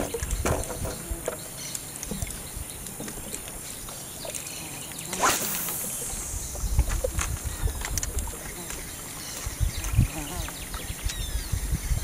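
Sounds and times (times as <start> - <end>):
rainforest insects droning: 3.6 - 11.5
short rushing sound: 5.1 - 7.5.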